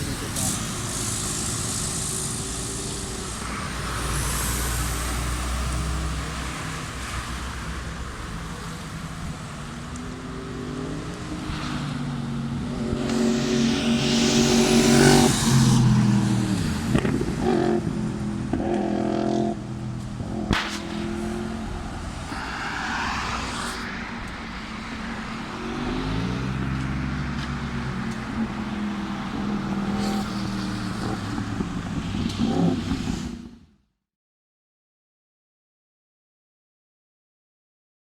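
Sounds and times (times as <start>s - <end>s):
motorcycle engine revving past: 10.3s - 33.5s.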